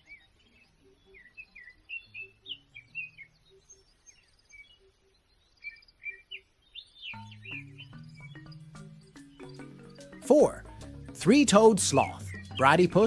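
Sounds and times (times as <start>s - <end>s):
birds chirping and whistling: 0.0s - 13.0s
faint low background notes: 7.2s - 13.0s.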